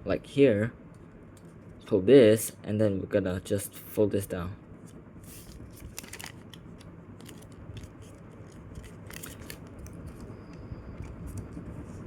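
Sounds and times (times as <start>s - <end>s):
paper crinkling: 5.2s - 10.3s.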